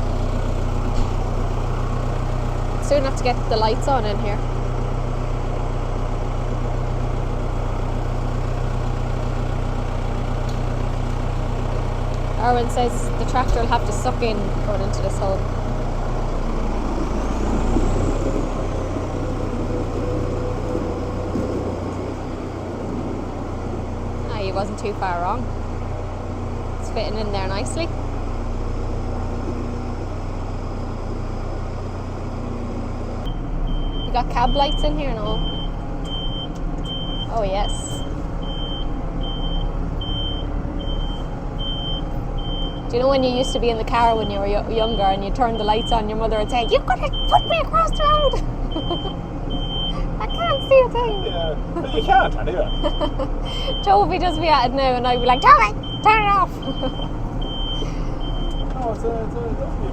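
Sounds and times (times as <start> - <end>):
tractor diesel engine at low revs: 0.0 - 59.9
steady high beeping: 43.4 - 58.7.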